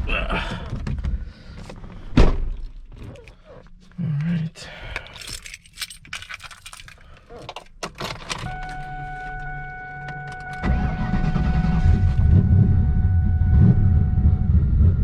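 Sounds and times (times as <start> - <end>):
clicks and rattles: 2.5 - 8.8
car engine starting and running: 5.2 - 15.0
whine with low hum: 8.5 - 15.0.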